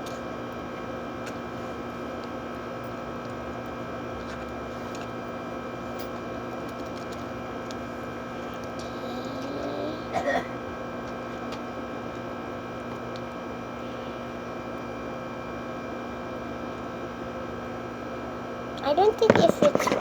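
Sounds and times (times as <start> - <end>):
small motor humming: 8.8 - 10.1.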